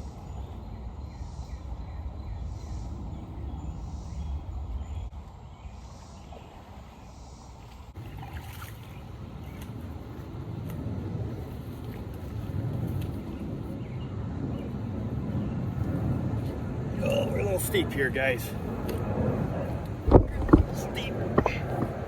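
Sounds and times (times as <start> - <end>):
wind rumble: 0.0 - 22.0
microphone handling noise: 20.0 - 22.0.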